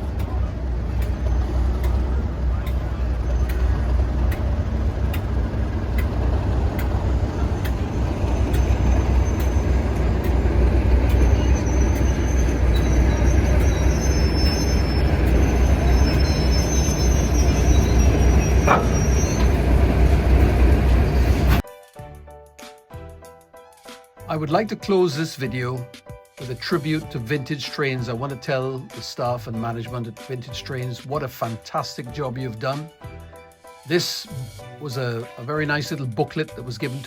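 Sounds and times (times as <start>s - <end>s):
wheels clicking over rail joints: 0.0s - 21.3s
high wheel squeal: 0.0s - 21.6s
train rumbling: 0.0s - 21.6s.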